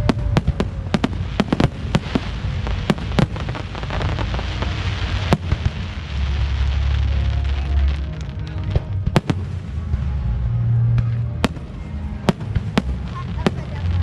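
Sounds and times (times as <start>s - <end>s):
loud firework crack: 0.0s - 10.0s
fireworks popping and crackling: 0.0s - 10.2s, 10.9s - 14.0s
low rumble: 0.0s - 14.0s.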